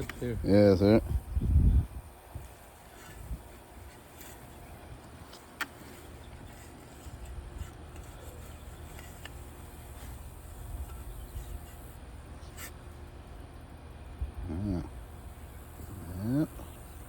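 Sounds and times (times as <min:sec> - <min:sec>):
insects trilling: 0:00.0 - 0:17.0
digging in garden soil: 0:02.2 - 0:13.5.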